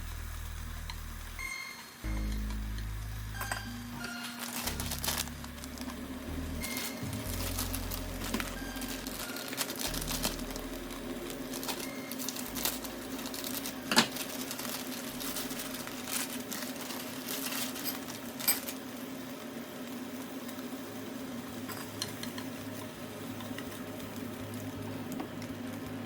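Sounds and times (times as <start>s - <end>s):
low hum: 0.0s - 16.6s.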